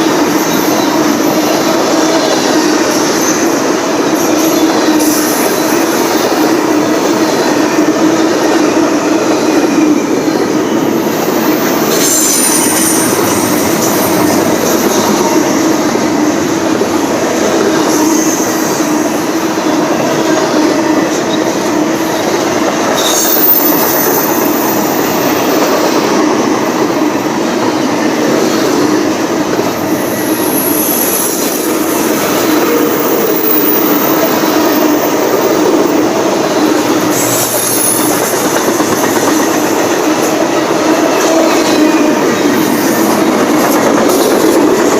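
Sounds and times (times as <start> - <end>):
steel wheels rumbling on rail: 0.0 - 44.9
high-pitched wheel squeals: 9.4 - 16.0, 21.0 - 25.7, 29.8 - 35.0, 36.5 - 38.6.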